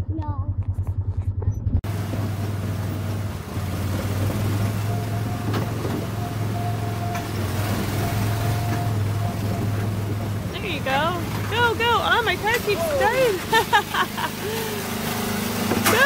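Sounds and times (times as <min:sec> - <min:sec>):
small engine running: 0:10.5 - 0:16.0.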